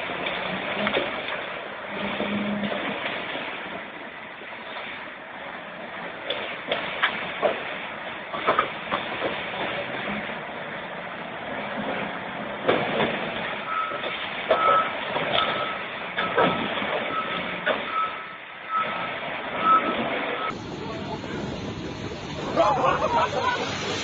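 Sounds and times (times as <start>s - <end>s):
irregular knocks and clatter: 6.2s - 10.4s, 11.7s - 17.9s
vehicle reversing alarm beeping: 13.6s - 21.7s.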